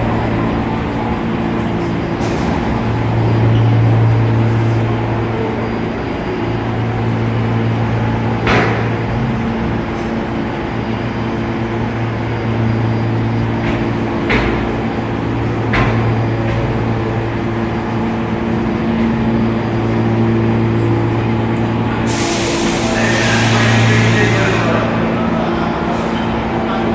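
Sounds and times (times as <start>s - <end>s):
subway train equipment humming: 0.0s - 26.9s
loud hiss: 22.1s - 24.7s.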